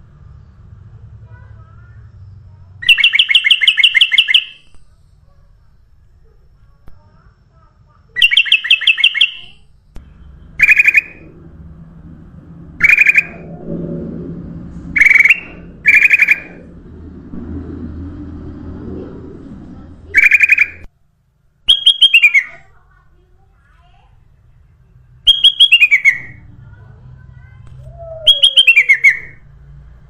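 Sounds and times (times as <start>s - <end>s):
bird chirping: 2.8s - 4.7s, 8.2s - 11.3s, 12.8s - 13.6s, 15.0s - 16.7s, 20.1s - 20.9s, 21.7s - 22.6s, 25.2s - 26.4s, 27.9s - 29.4s
low steady hum: 9.4s - 30.0s.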